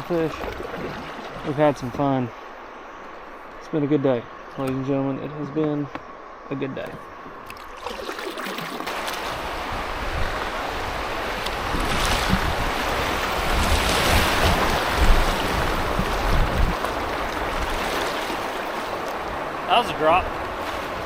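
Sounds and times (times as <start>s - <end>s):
rushing river water: 0.0s - 3.3s, 7.4s - 21.0s
wind buffeting microphone: 9.2s - 21.0s.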